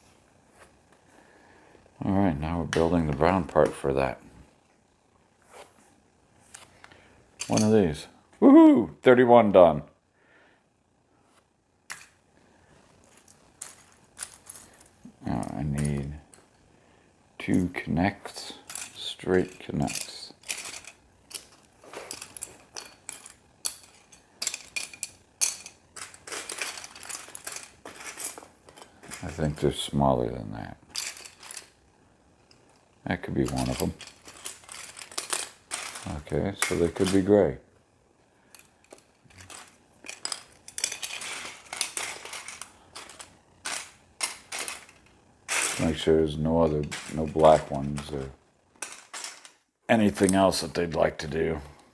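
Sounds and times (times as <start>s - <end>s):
plastic pieces clicking and clattering: 7.4s - 7.8s, 13.0s - 14.9s, 17.5s - 29.6s, 30.9s - 31.8s, 33.4s - 37.4s, 38.5s - 50.4s.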